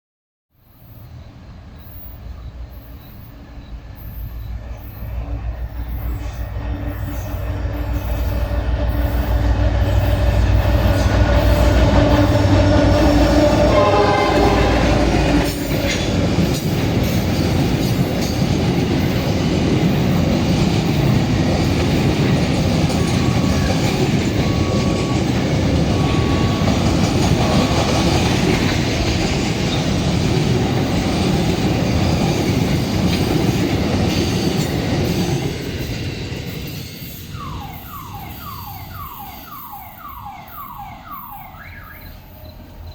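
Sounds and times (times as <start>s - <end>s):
train wheel squeal: 0.6s - 42.9s
diesel locomotive engine rumble: 0.7s - 39.2s
freight wagons clickety-clack: 15.2s - 37.3s.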